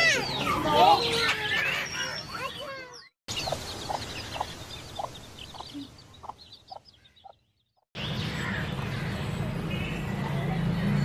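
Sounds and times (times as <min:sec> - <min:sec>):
lovebirds chirping: 0:00.0 - 0:11.0.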